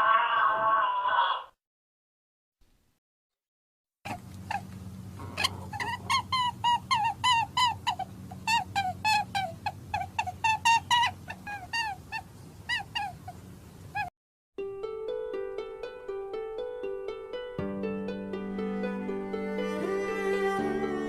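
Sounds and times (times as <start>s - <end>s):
animal making high calls: 0.0s - 1.5s, 4.1s - 14.1s.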